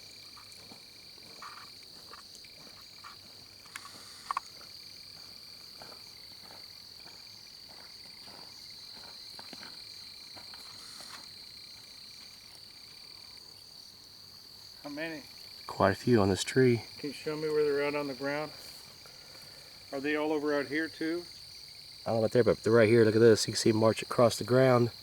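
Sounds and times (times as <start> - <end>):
crickets or frogs trilling: 0.0 - 25.0
faint ticks: 0.2 - 7.1.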